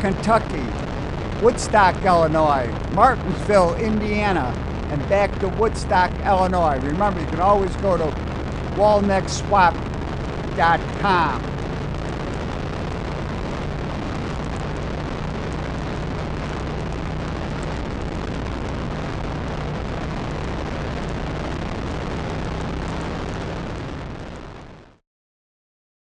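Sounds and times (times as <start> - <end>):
engines rumbling: 0.0 - 17.8
low hum: 0.0 - 24.4.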